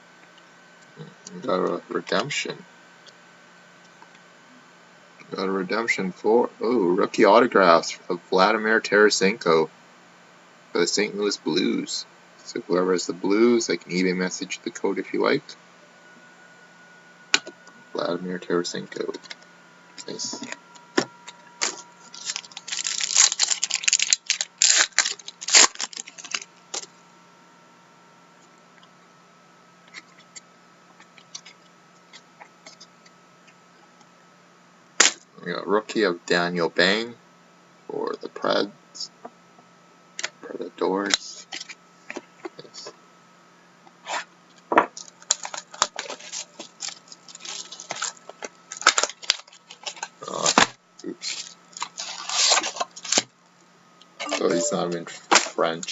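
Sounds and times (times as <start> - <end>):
cards rustling and clicking: 20.4 - 26.9.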